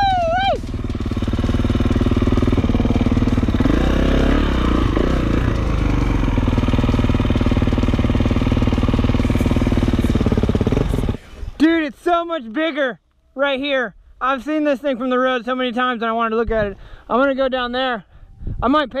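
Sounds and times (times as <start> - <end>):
dirt bike engine running: 0.0 - 11.8.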